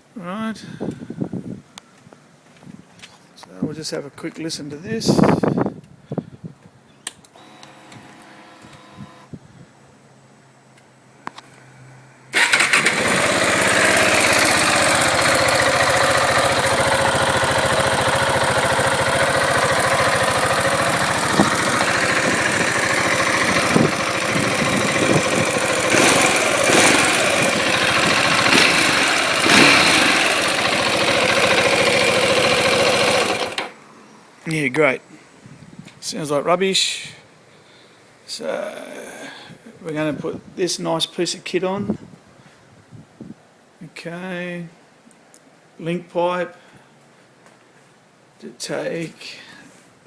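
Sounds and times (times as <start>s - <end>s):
motorcycle engine starting and idling: 12.3s - 33.8s
motorcycle throttle blips: 12.4s - 33.8s.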